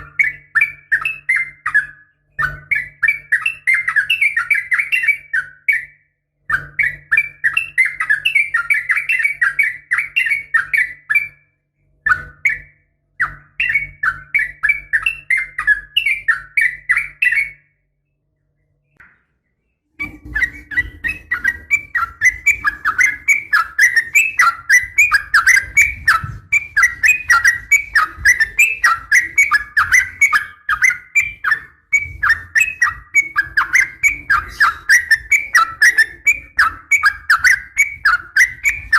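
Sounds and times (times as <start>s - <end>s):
bird chattering call: 20.0s - 38.9s.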